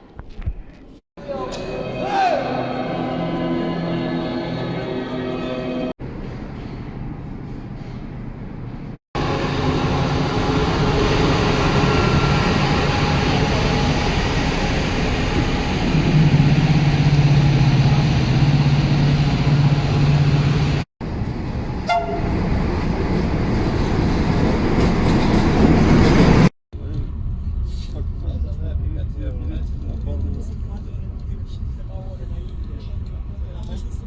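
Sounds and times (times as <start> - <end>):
train rumbling: 1.2 - 34.0
train horn toot: 21.8 - 22.5.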